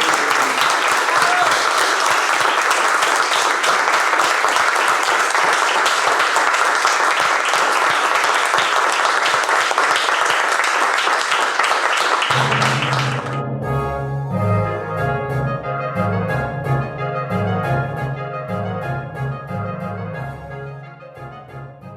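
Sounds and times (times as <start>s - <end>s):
audience applauding: 0.0s - 13.4s.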